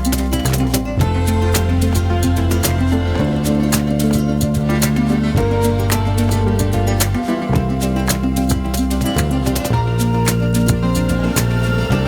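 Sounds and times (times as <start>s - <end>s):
background music with plucked strings: 0.0s - 12.0s.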